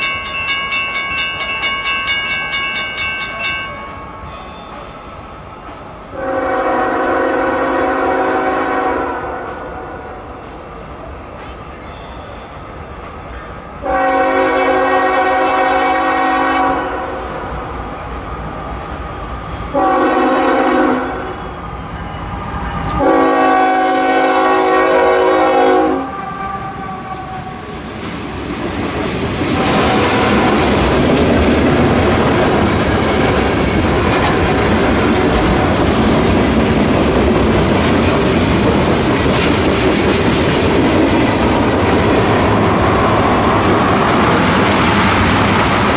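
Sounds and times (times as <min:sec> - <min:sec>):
train wheels rumbling and clattering: 0:00.0 - 0:45.9
locomotive air horn: 0:06.2 - 0:09.9, 0:13.8 - 0:17.4, 0:19.7 - 0:21.5, 0:22.9 - 0:27.7, 0:29.6 - 0:30.7.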